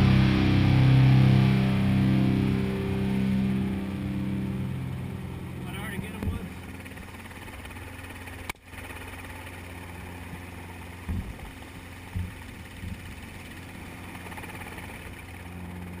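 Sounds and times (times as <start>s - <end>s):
low thumps: 0.0s - 7.2s, 11.0s - 13.3s
engine drone: 0.0s - 16.0s.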